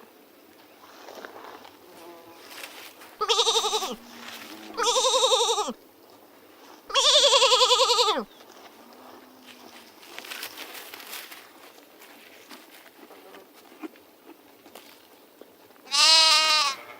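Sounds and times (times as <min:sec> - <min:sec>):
loud quavering bleats: 0:03.2 - 0:05.8, 0:06.9 - 0:08.3, 0:15.9 - 0:16.9.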